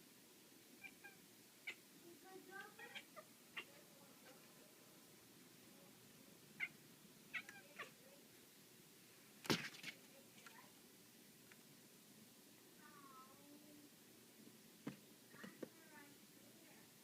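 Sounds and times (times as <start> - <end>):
cat meowing: 7.3 - 8.0.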